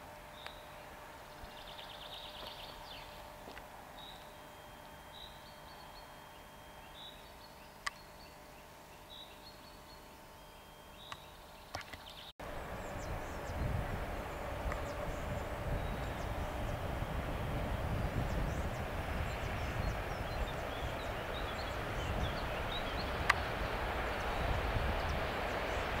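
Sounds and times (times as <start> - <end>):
birds chirping: 0.2 - 26.0
train rumble approaching: 12.4 - 26.0.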